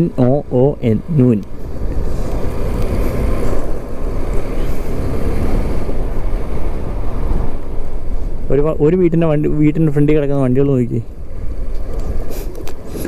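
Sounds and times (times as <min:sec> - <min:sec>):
motorcycle engine rumble: 0:00.0 - 0:13.0
wind noise on microphone: 0:01.4 - 0:13.0.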